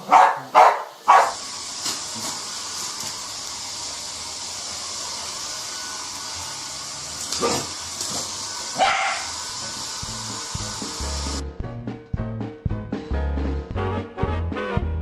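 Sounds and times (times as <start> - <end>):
dog barking: 0.0 - 1.4, 7.4 - 7.7, 8.8 - 9.3
hair dryer blowing: 0.9 - 11.4
music: 10.0 - 15.0.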